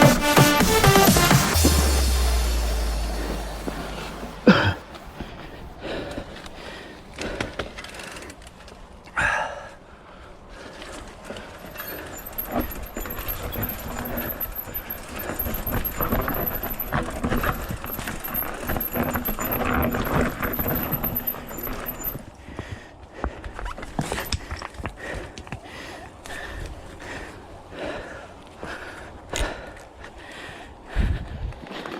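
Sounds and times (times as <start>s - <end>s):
footsteps on a trail: 1.1s - 9.3s, 10.5s - 31.9s
clothing and gear rustling: 10.6s - 22.4s.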